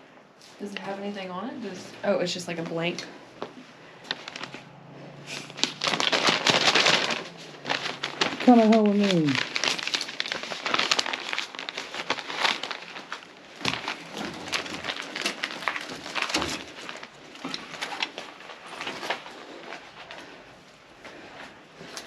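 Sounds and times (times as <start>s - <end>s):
paper crinkling and crunching: 4.0s - 4.7s, 5.4s - 22.0s.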